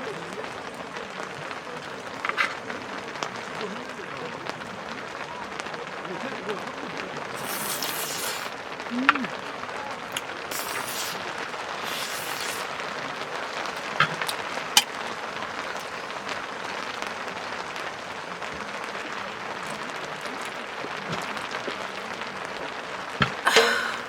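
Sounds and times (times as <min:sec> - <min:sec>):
rain on tent fabric: 0:00.0 - 0:24.0.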